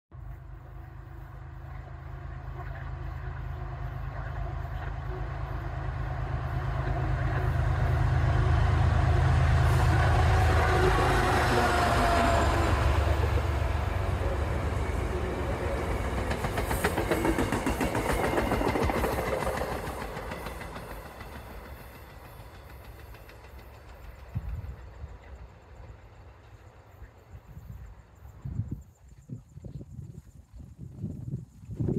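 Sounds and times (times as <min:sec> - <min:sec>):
diesel locomotive engine drone: 0:00.1 - 0:28.9
train wheels clattering over rails: 0:09.9 - 0:26.9.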